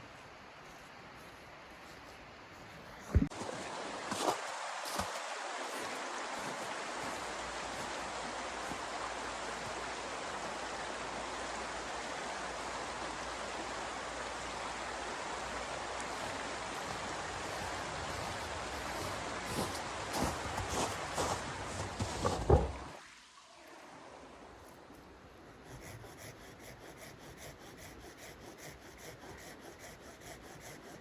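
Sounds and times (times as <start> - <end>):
steady rushing hiss: 14.3 - 22.6.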